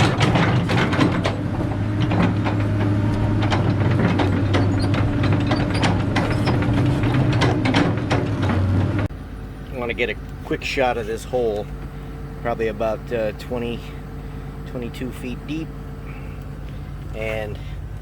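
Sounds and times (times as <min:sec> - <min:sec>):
metallic clanks and knocks: 0:00.0 - 0:09.1
excavator diesel engine running: 0:00.0 - 0:18.0.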